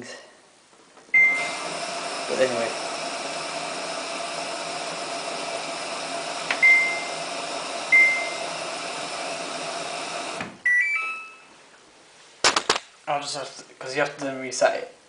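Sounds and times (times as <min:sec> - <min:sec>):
washing machine hum and hiss: 0:01.1 - 0:10.6
control panel beeping: 0:06.5 - 0:07.1, 0:10.6 - 0:11.5.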